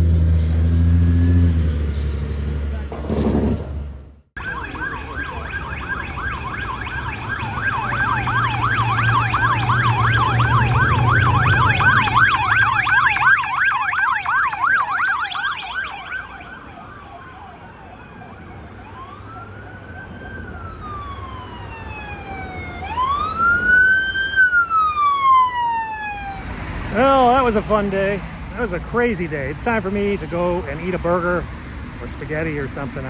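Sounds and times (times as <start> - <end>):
siren yelping: 4.4 - 26.5
wailing siren: 4.4 - 26.6.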